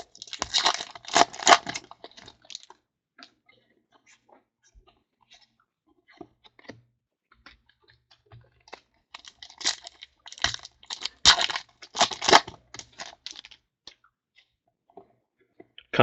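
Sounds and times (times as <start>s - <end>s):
card pack wrapper crinkling: 0.0s - 2.7s, 9.2s - 13.6s.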